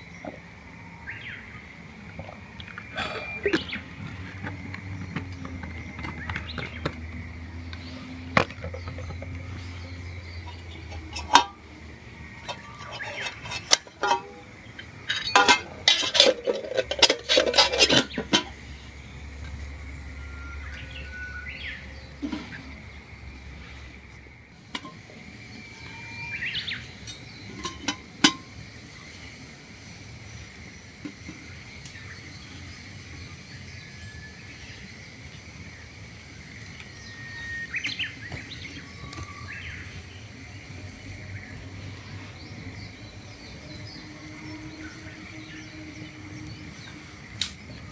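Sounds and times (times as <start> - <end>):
outdoor ambience: 0.0 - 47.9
bird chirps: 20.1 - 22.7, 25.6 - 27.6.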